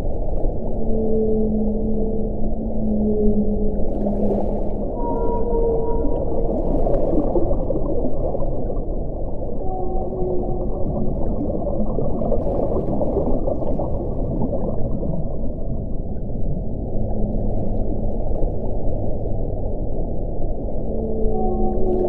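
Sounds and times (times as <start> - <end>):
wind rumbling: 0.0 - 22.0
faint moaning tones: 0.1 - 22.0.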